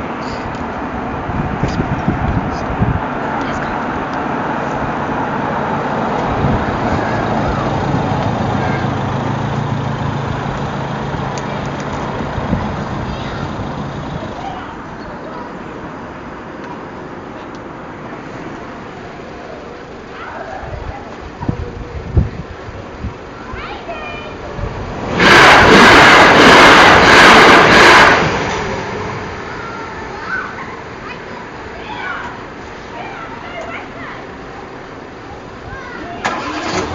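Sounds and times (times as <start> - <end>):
vehicle going by: 0.0 - 16.4, 23.7 - 31.2
train passing at speed: 2.2 - 14.9, 24.5 - 29.6.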